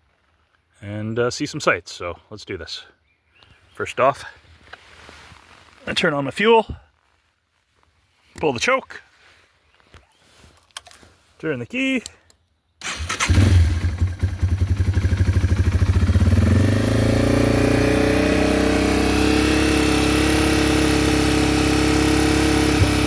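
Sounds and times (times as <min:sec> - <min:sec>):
motorcycle engine starting and idling: 0:12.8 - 0:23.0.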